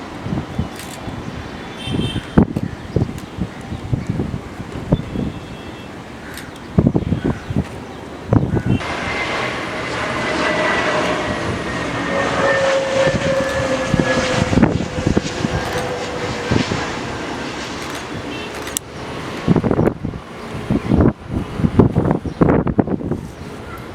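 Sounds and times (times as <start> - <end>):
jet airliner engine roar: 0.0 - 23.9
wind buffeting microphone: 0.0 - 23.9.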